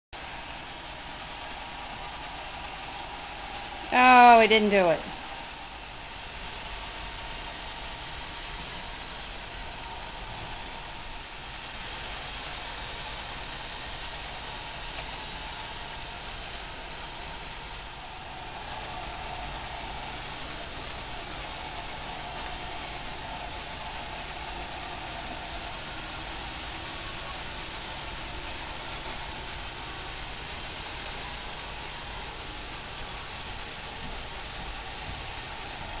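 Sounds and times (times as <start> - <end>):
faint constant tone: 0.2 - 36.0
robot vacuum running: 5.2 - 36.0.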